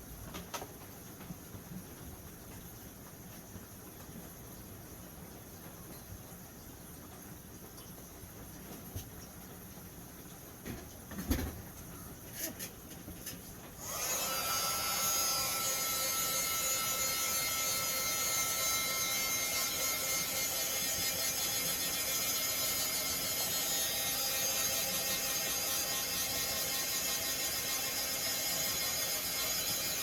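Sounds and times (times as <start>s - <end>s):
heat tool fan whining: 11.9s - 30.0s.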